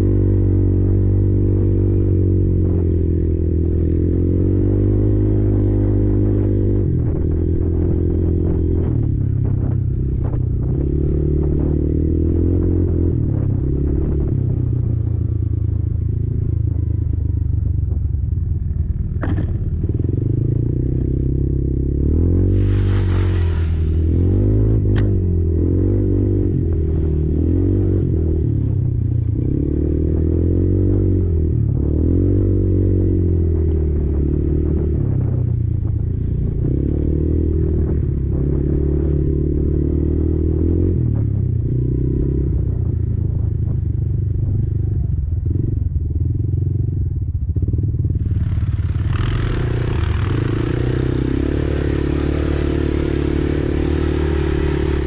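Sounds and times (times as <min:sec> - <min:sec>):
short rush of noise: 0:22.3 - 0:25.4
quad bike engine revving: 0:47.7 - 0:55.0.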